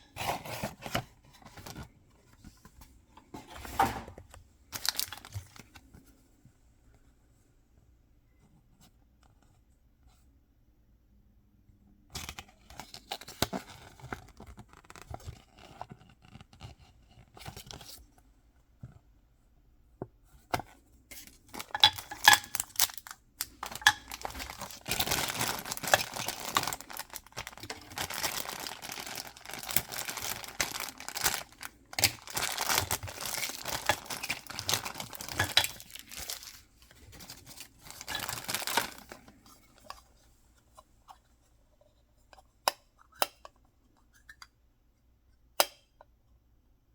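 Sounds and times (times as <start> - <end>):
packaging tearing and crinkling: 4.8 - 5.3, 21.6 - 39.2.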